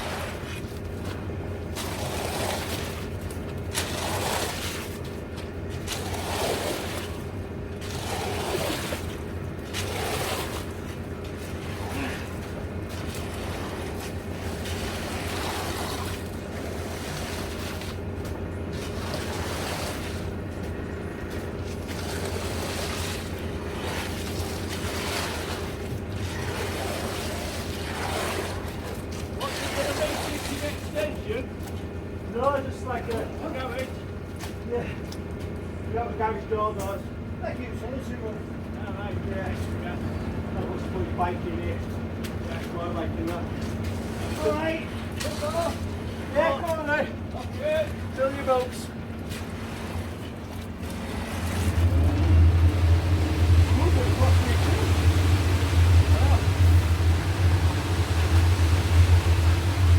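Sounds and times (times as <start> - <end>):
engine running: 0.0 - 59.9
rushing noise: 51.1 - 59.9.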